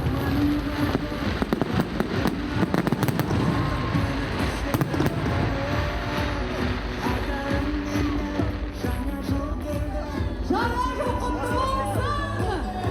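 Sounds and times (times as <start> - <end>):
fireworks bangs and crackles: 0.0 - 10.3
music playing: 0.0 - 12.9.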